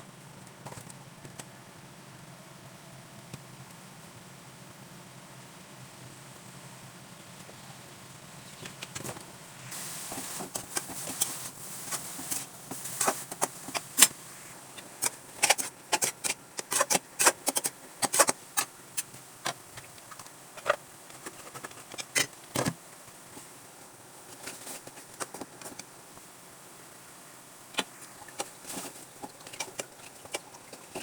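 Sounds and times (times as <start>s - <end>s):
short hiss: 9.6s - 15.7s.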